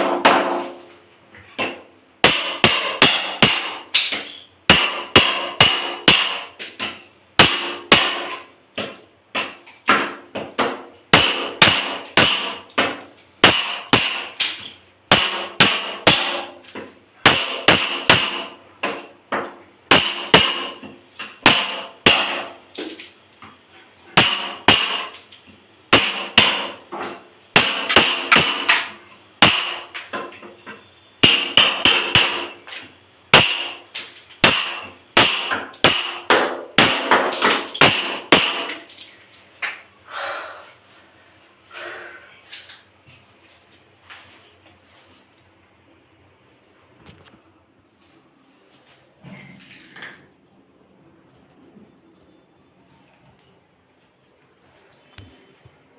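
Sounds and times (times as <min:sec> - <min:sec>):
hammer breaking tiles: 0:00.0 - 0:00.8, 0:01.6 - 0:23.0, 0:24.2 - 0:25.3, 0:25.9 - 0:32.7, 0:33.3 - 0:39.0.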